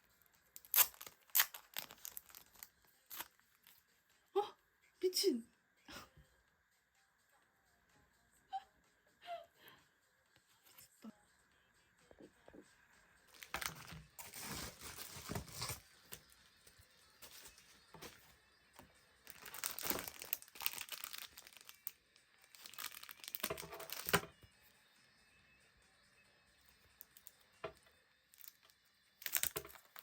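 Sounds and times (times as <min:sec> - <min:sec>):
packaging crinkling and tearing: 0:00.6 - 0:03.3, 0:13.4 - 0:16.1, 0:19.3 - 0:24.3, 0:28.4 - 0:30.0.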